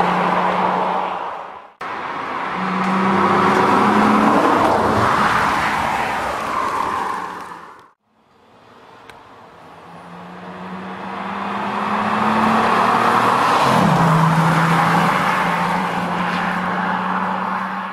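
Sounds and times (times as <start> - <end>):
car engine accelerating: 1.8 - 6.0, 9.5 - 17.9.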